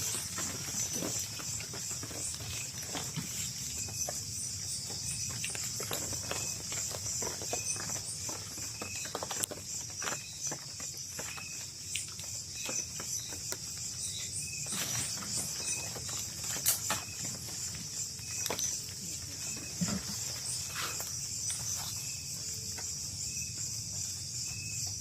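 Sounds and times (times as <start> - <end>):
footsteps in undergrowth: 0.0 - 23.0
crickets trilling: 0.0 - 25.0.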